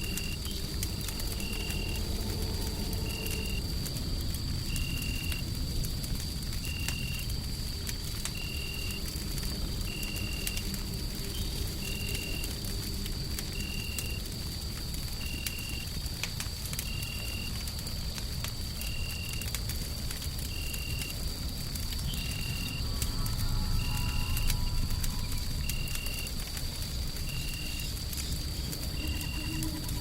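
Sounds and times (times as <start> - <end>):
low white-noise rumble: 0.0 - 10.1
wood fire crackling: 0.0 - 30.0.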